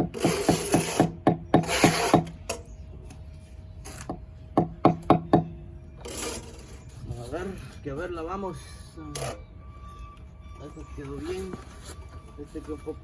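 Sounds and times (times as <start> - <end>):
scraping over brick and mortar: 9.9 - 13.0.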